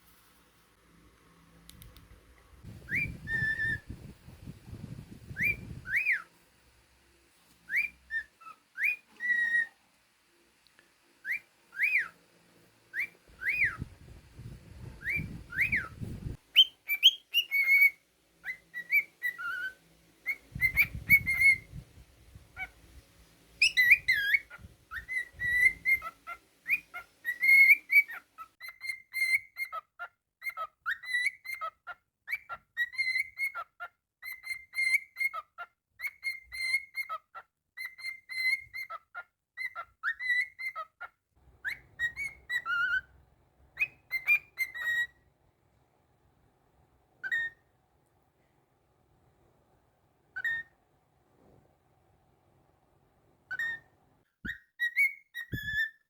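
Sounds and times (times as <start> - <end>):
cockatiel whistling: 2.7 - 4.1, 4.8 - 6.3, 7.7 - 9.8, 11.2 - 12.2, 12.9 - 21.8, 23.6 - 37.2, 37.8 - 40.9, 41.6 - 43.1, 43.8 - 45.2, 47.2 - 47.7, 50.3 - 50.7, 53.5 - 56.0.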